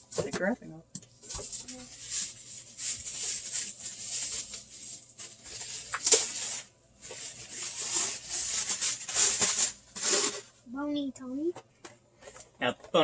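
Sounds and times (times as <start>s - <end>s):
paper wrapping rustling: 1.2s - 10.5s.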